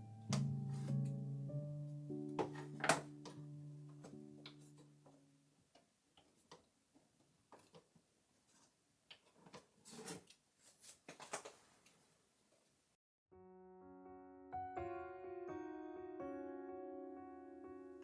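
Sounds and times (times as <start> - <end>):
background music: 0.0 - 5.0, 13.4 - 18.0.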